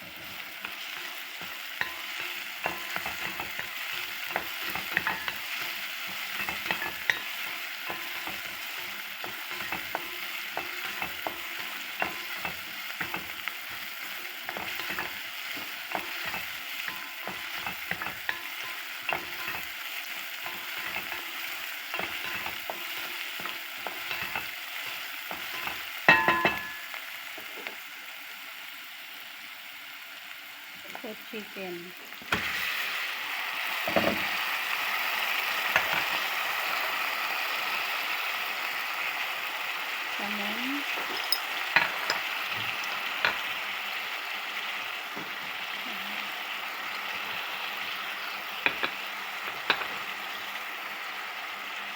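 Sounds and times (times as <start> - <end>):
food sizzling in a frying pan: 0.0 - 51.9.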